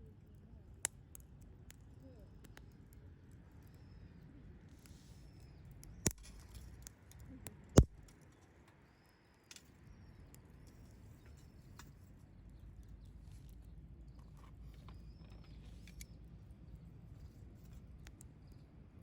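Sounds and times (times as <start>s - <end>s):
wood fire crackling: 0.1s - 18.6s
sharp fire pops: 5.8s - 7.0s, 7.7s - 8.1s.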